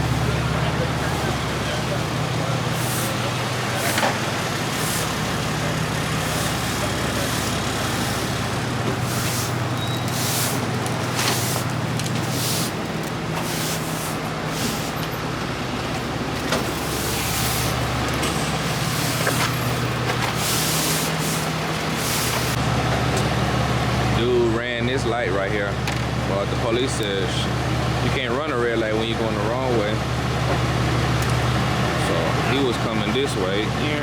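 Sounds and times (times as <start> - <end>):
truck engine idling: 0.0 - 34.0
air releasing hiss: 9.0 - 10.6.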